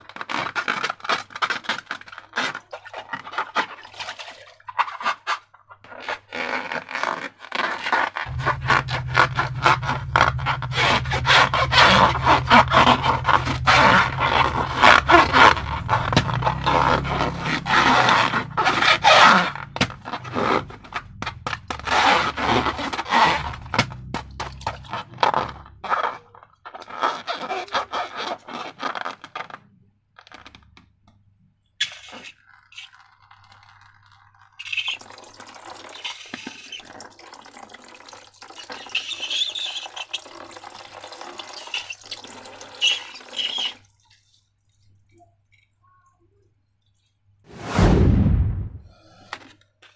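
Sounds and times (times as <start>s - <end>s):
slime scraping and crackling: 0.0s - 4.0s, 4.8s - 29.7s.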